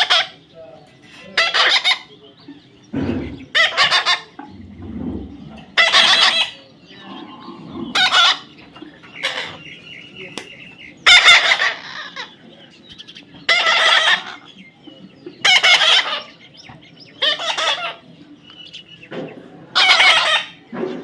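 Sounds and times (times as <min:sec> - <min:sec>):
parrot calling loudly: 0:01.4 - 0:02.1, 0:05.7 - 0:06.6, 0:11.0 - 0:12.4, 0:13.5 - 0:14.5, 0:15.4 - 0:16.4, 0:17.2 - 0:18.0, 0:19.7 - 0:20.6.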